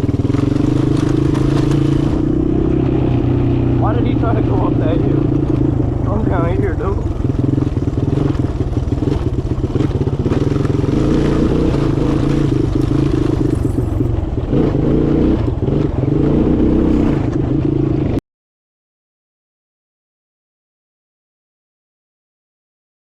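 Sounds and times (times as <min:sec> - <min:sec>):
small vehicle engine running: 0:00.0 - 0:18.2.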